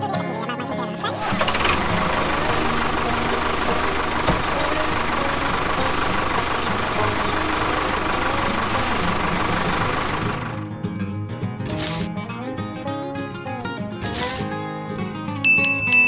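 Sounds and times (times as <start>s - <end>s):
small engine running: 1.2s - 10.6s, 11.7s - 12.1s, 14.0s - 14.5s
sharp click: 11.7s - 12.1s, 14.0s - 14.4s.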